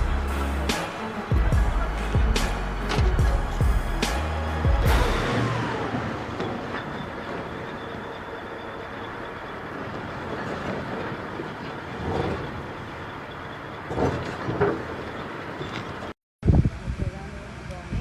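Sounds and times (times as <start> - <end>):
heavy vehicle running: 0.0 - 16.2
brief loud sounds: 4.0 - 7.5.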